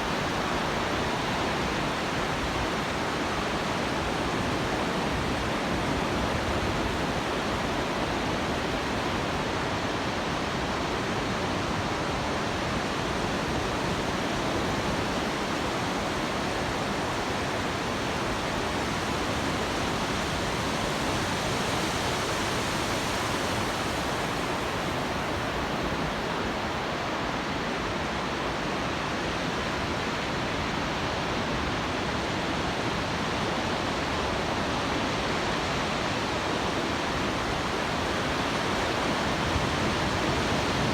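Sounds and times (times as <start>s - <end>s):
heavy surf breaking on beach: 31.5s - 40.9s.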